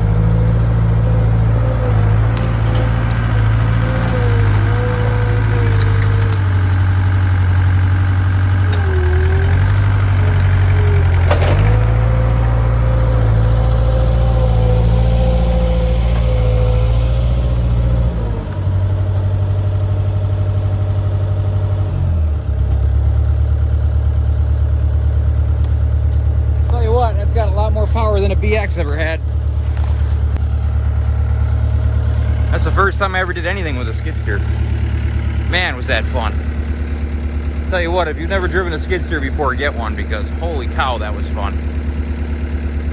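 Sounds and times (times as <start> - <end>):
engine running under load: 0.0 - 42.9
sharp crack: 2.2 - 16.8.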